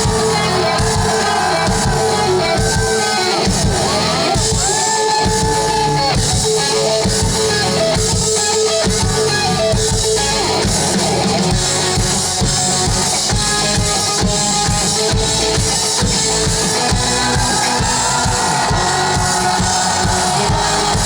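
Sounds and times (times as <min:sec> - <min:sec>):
drum kit: 0:00.0 - 0:21.0
electric guitar with bending notes: 0:00.0 - 0:21.0.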